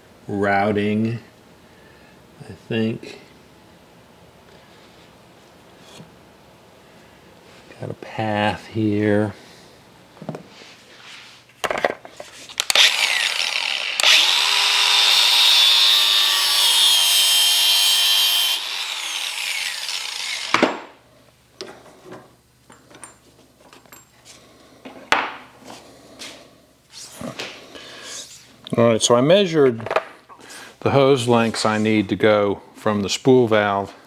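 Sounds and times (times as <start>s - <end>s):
power tool cutting or grinding: 12.6s - 20.8s.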